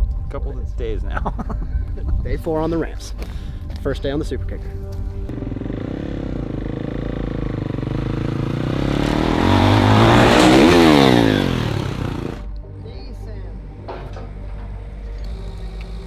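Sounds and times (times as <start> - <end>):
dirt bike engine accelerating: 5.3 - 12.5.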